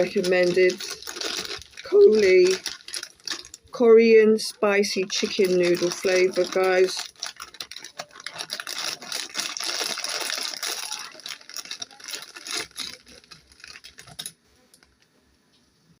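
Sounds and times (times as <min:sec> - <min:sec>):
clicks and rattles of eating noodles: 0:00.0 - 0:03.7, 0:05.0 - 0:15.0.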